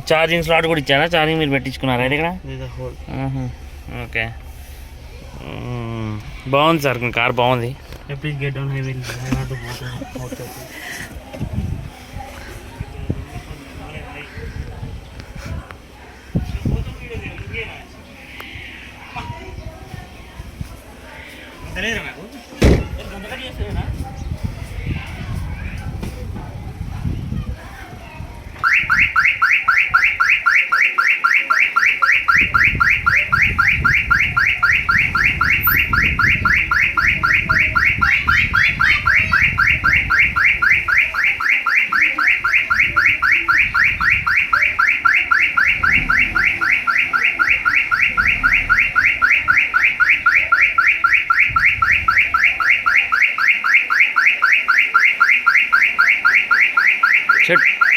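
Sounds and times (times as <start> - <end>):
car alarm chirping: 28.6 - 57.9.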